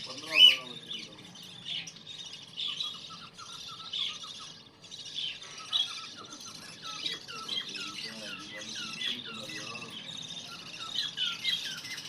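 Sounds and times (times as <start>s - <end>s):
budgerigars chirping: 0.0s - 12.0s.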